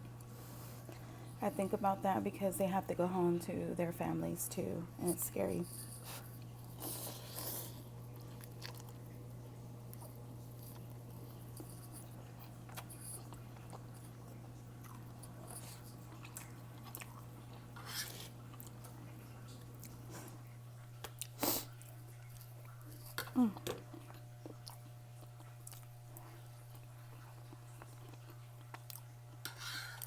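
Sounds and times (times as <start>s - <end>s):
steady low hum: 0.0s - 30.0s
person chewing: 5.9s - 9.2s, 9.8s - 30.0s.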